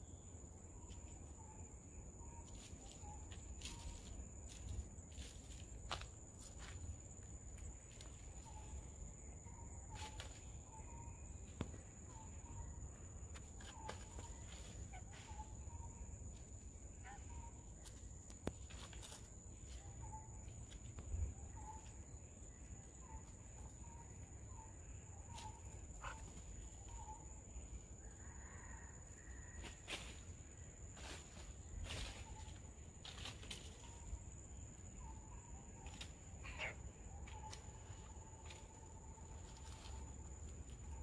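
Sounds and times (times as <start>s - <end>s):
bird chirping softly: 7.6s - 29.4s.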